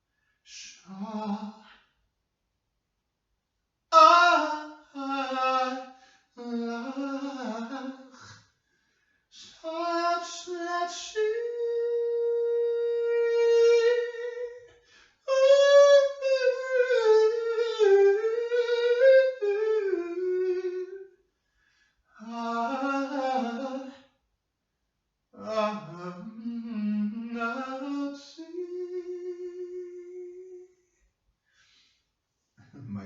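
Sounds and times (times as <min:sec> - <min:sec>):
person singing wordless notes: 0:09.5 - 0:14.6.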